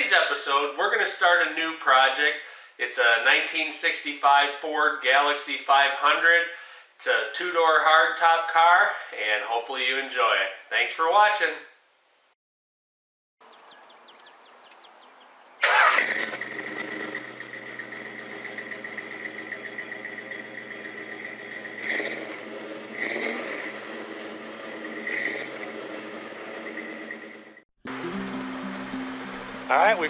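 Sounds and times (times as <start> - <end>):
car engine cranking: 15.6 - 27.6
car engine running: 15.6 - 30.0.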